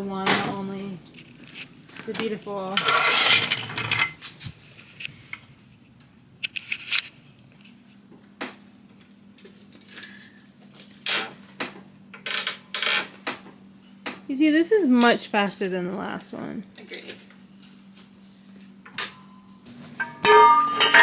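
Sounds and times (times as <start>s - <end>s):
faint steady hum: 0.0s - 21.0s
metallic tool clanks: 2.8s - 4.2s, 20.0s - 21.0s.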